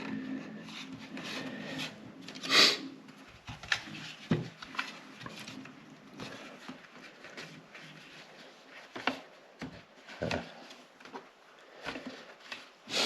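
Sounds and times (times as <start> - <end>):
scraping rub: 0.0 - 2.8.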